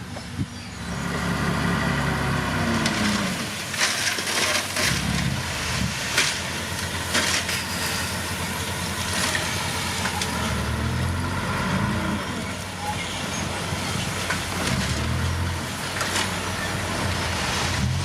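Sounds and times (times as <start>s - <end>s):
heavy diesel machine running: 0.0s - 18.0s
rock and gravel crunching: 2.7s - 10.8s.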